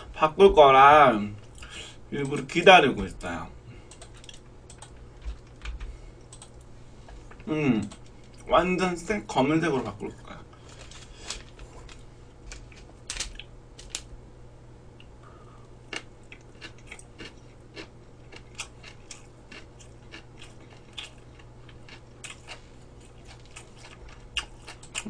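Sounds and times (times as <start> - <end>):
crunchy chewing: 15.6 - 25.0.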